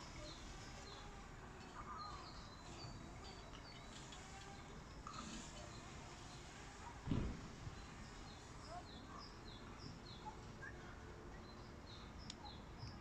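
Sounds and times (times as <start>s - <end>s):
small birds chirping: 0.0s - 13.0s
low thump: 7.1s - 7.6s.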